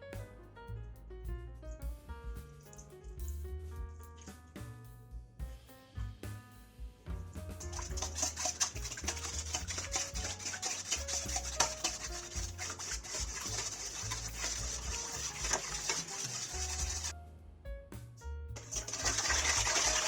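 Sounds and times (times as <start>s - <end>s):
spoon clinking and scraping bowl: 7.8s - 17.1s, 18.6s - 20.0s.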